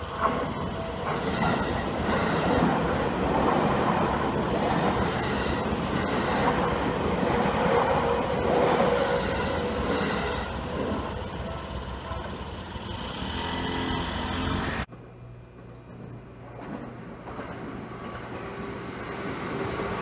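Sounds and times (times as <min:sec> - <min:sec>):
train wheels clattering: 0:15.6 - 0:20.0.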